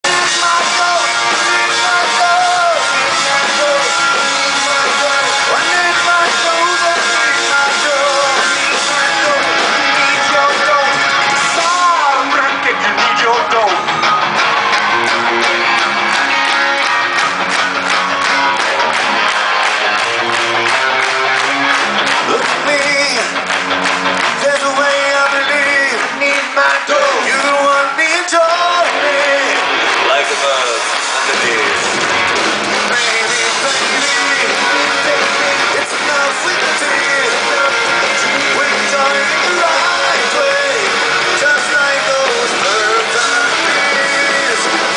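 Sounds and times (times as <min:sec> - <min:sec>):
person singing: 0:00.0 - 0:13.7, 0:22.2 - 0:23.4, 0:24.2 - 0:32.0, 0:32.8 - 0:44.9
guitars: 0:00.0 - 0:44.9
rock band playing live: 0:00.0 - 0:44.9.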